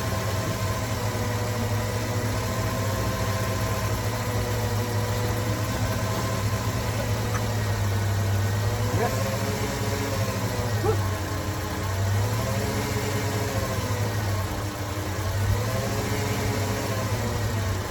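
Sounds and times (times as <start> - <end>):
car engine idling: 0.0 - 17.9.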